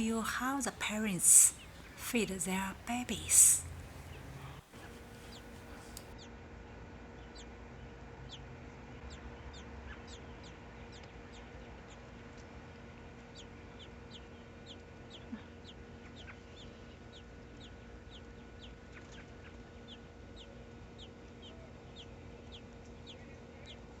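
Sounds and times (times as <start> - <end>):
small bird chirping: 0.0 - 6.2
steady low hum: 0.0 - 6.2.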